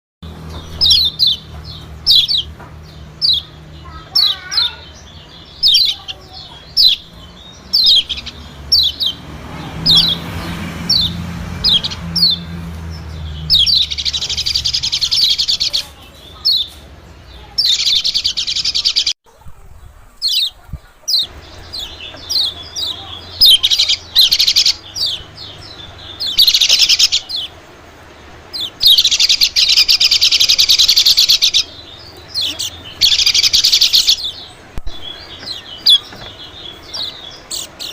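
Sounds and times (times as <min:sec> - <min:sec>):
bird chirps and trills: 0:00.2 - 0:37.9.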